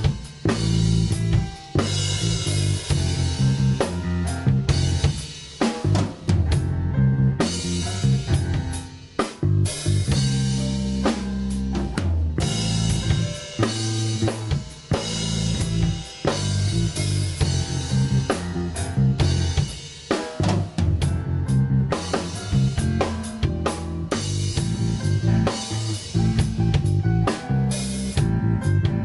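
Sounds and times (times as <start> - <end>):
snare and bass drum hits: 0.0 - 6.7
rock band playing live: 0.0 - 29.0.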